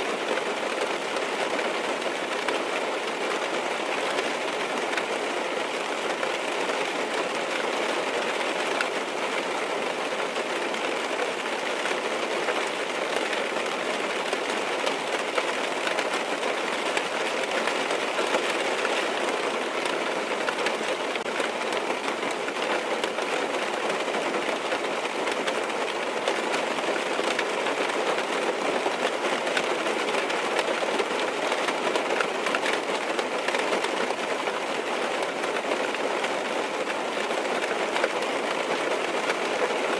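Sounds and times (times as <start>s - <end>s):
rain on car roof: 0.0s - 39.9s.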